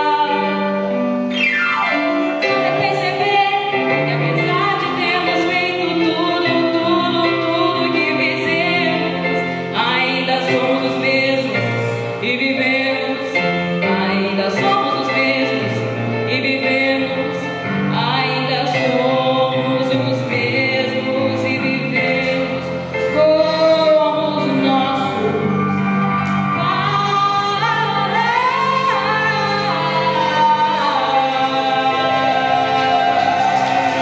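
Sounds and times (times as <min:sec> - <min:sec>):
instrumental accompaniment: 0:00.0 - 0:34.0
person singing with vibrato: 0:00.0 - 0:34.0.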